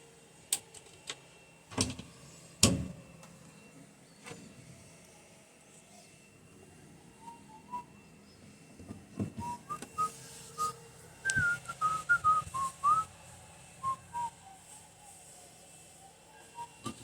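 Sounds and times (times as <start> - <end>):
person whistling a tune: 9.4 - 13.1, 13.8 - 14.3.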